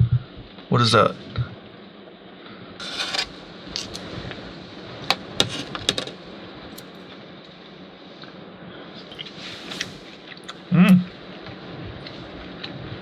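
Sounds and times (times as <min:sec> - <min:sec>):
metal utensils clinking: 0:02.8 - 0:04.0
metal utensils scraping cookware: 0:02.8 - 0:04.0.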